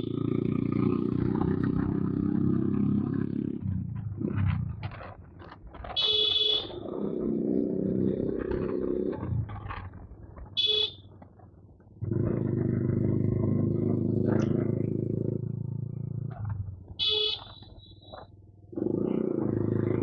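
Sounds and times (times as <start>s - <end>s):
motorcycle engine revving: 0.0s - 11.0s, 12.0s - 20.0s
horn short beeps: 6.0s - 6.8s, 10.6s - 11.0s, 17.0s - 18.2s.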